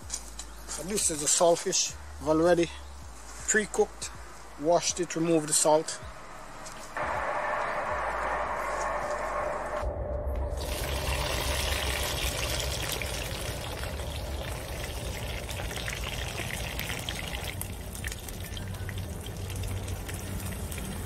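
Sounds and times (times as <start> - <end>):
low rumble: 6.1 - 21.0.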